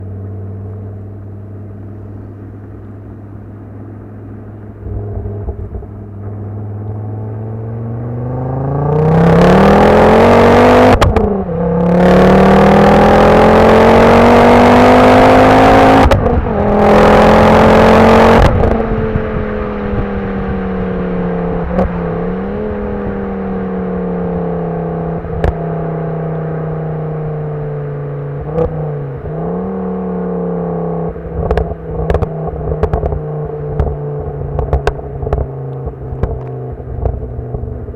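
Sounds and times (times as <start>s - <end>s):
car engine idling and revving: 0.0s - 37.9s
exhaust backfire pops: 4.8s - 7.0s, 10.9s - 11.4s, 16.0s - 16.5s, 18.4s - 19.0s, 25.3s - 25.6s, 31.3s - 37.9s.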